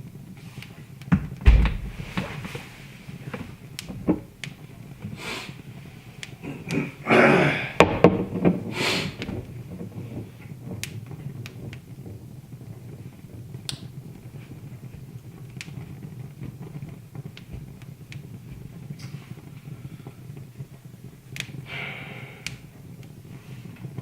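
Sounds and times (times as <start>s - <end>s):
wood fire crackling and popping: 0.0s - 24.0s
low thump: 1.1s - 4.2s.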